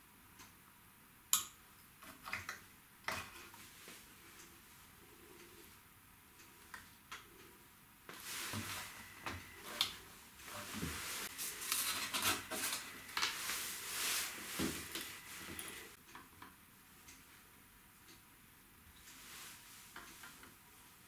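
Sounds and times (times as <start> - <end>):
rustling on workbench: 8.1 - 9.8, 10.4 - 16.0.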